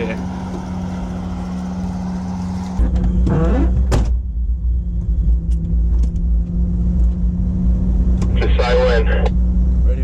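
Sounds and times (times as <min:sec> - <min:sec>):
engine idling: 0:00.0 - 0:03.0
heavy low rumble: 0:00.0 - 0:10.0.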